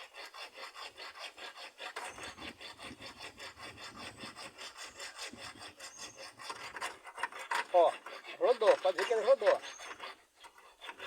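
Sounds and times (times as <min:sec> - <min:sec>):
hacksaw blade sawing metal bolt: 0:06.4 - 0:11.0.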